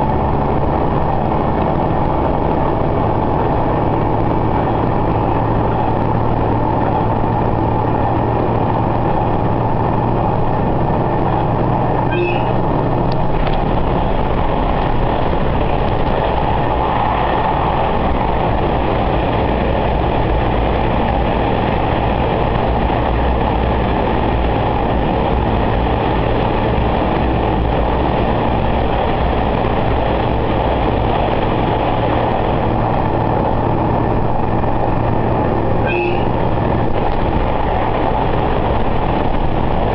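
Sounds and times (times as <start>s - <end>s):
railcar engine hum: 0.0s - 39.9s
wheels rumbling on rail: 0.0s - 39.9s
high squeak: 12.1s - 12.6s.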